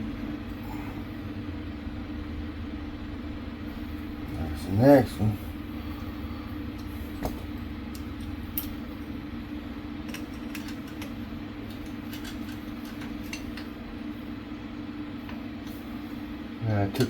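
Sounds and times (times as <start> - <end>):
steady low hum: 0.0 - 17.0
metal tools clinking: 11.7 - 13.7.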